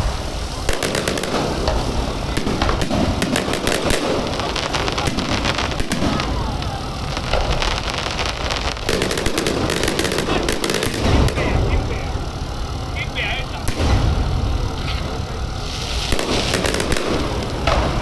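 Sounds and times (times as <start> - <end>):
fireworks cracking and popping: 0.0 - 18.0
low rumble: 4.1 - 18.0.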